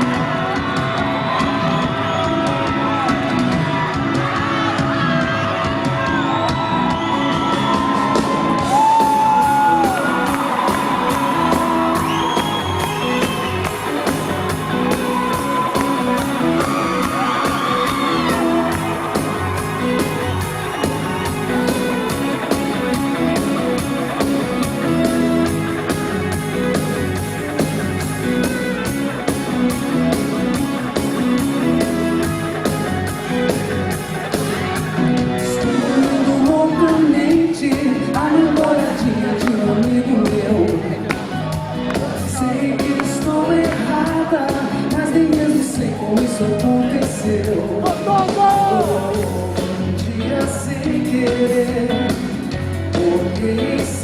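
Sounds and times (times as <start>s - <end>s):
audience shouting and whooping: 0.0s - 37.1s, 47.8s - 49.4s
live band playing: 0.0s - 54.0s.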